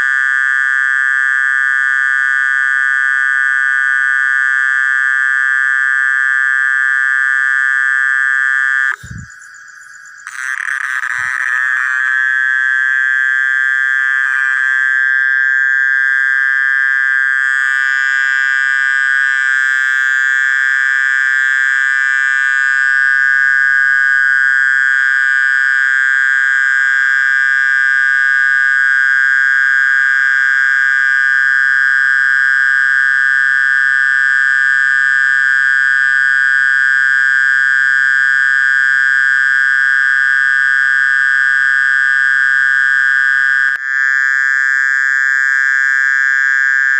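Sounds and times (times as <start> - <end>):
mole cricket trilling: 0.0 - 46.9.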